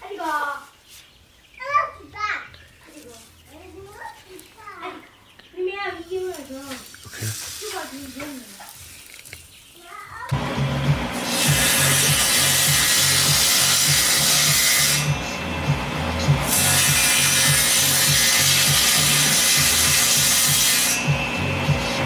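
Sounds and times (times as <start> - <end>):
power tool grinding steel: 10.3 - 22.0.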